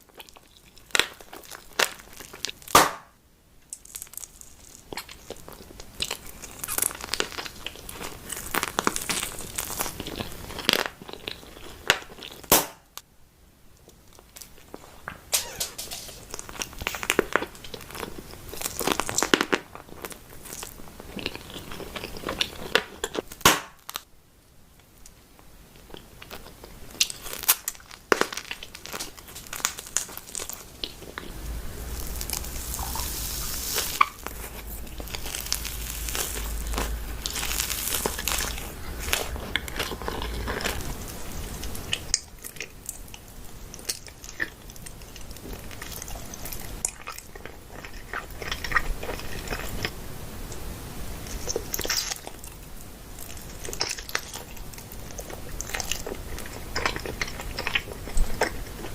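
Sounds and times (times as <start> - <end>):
food packaging crinkling: 0.0 - 2.8, 3.7 - 12.6, 14.0 - 24.1, 25.8 - 50.0, 51.2 - 58.9
crunchy bites and chewing: 3.7 - 12.8, 25.8 - 50.0, 51.2 - 58.9
sharp crackles: 26.9 - 47.0
low rumble: 30.8 - 42.0.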